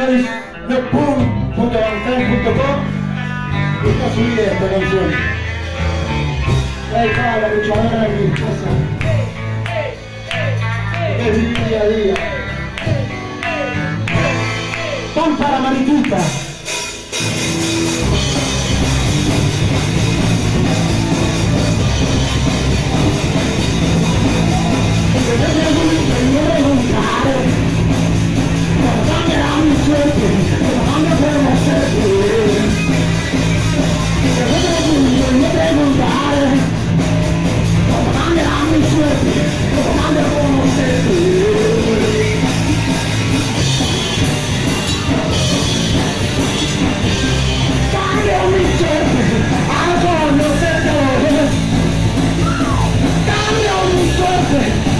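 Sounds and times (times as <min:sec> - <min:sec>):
punk rock band playing: 0:00.0 - 0:54.9
person singing: 0:24.1 - 0:27.8, 0:28.4 - 0:33.1, 0:33.8 - 0:36.8, 0:37.8 - 0:43.0, 0:52.4 - 0:54.9.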